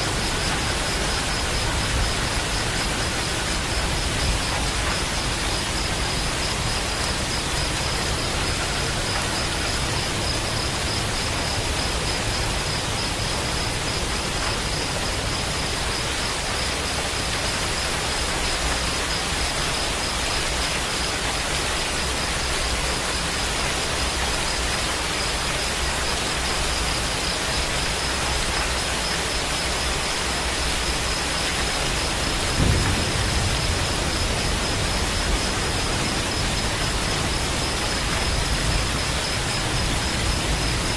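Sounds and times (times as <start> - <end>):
steady rain falling: 0.0 - 40.9
low rumble of thunder: 32.2 - 39.0.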